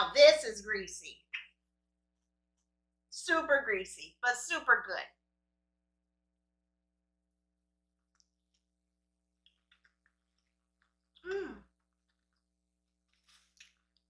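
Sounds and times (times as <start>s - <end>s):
wet mouth clicks chewing: 9.4s - 12.5s
person humming mm: 11.2s - 11.7s.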